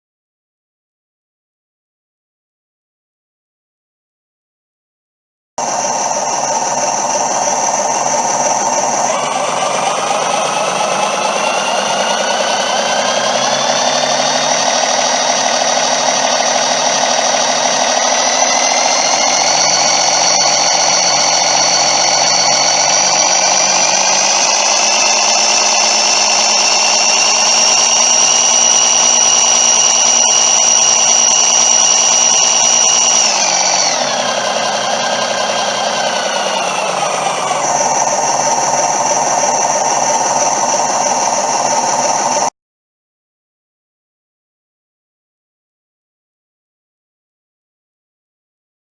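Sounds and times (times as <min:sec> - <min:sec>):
diesel engine revving through small speaker: 0:08.0 - 0:31.9.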